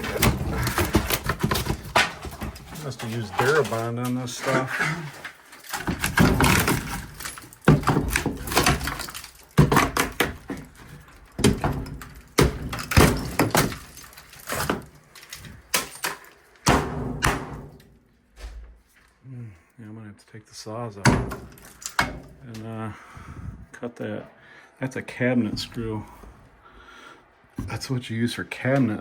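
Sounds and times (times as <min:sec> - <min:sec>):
heavy blows on wooden boards: 0:05.8 - 0:14.9, 0:16.6 - 0:17.8.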